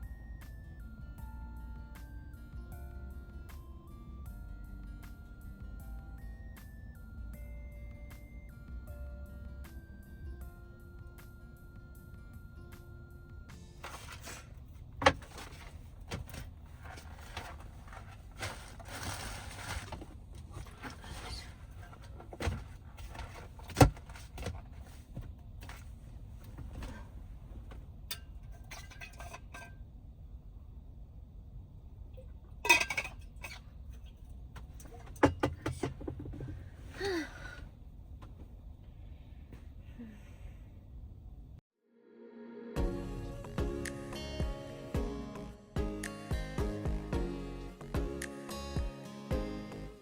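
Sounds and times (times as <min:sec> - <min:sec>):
rustling: 0:15.2 - 0:27.0
dishes knocking and clinking: 0:32.7 - 0:33.6, 0:34.9 - 0:36.5.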